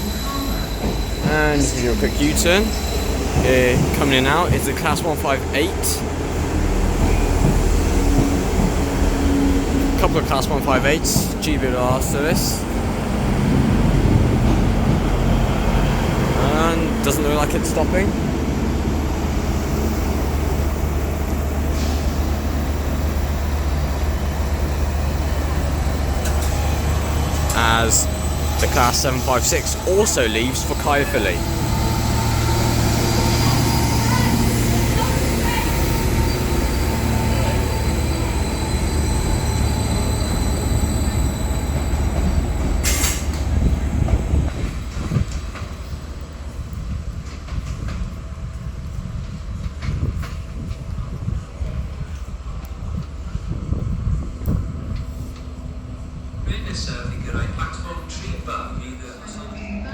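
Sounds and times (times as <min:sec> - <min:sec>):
high-pitched squeal: 0:00.0 - 0:04.8, 0:20.7 - 0:43.3
low diesel train rumble: 0:00.0 - 0:59.9.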